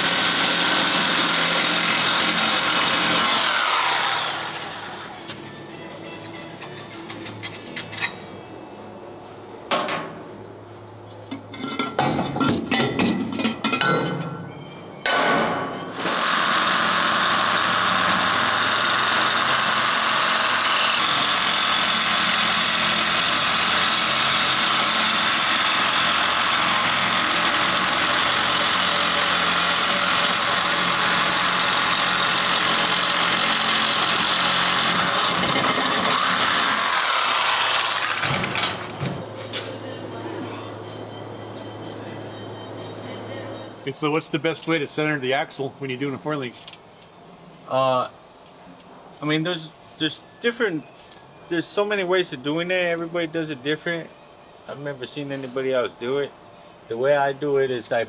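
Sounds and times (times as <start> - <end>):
power tool cutting steel: 0.0 - 5.4, 15.9 - 39.0
metal parts clanking: 11.3 - 14.4.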